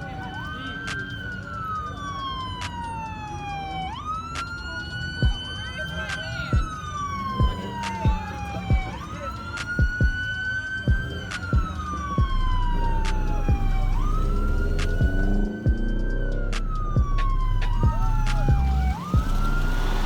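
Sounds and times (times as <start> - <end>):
siren wailing: 0.0 - 20.0
sharp thumping beat: 5.2 - 5.4, 6.5 - 6.7, 7.4 - 9.0, 9.6 - 10.3, 10.9 - 19.7
deep bass: 10.9 - 20.0.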